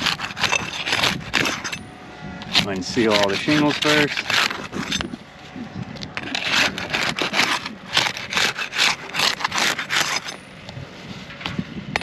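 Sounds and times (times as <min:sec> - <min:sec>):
pry tool scraping roof shingles: 0:00.0 - 0:01.8, 0:02.4 - 0:05.2, 0:06.0 - 0:10.4.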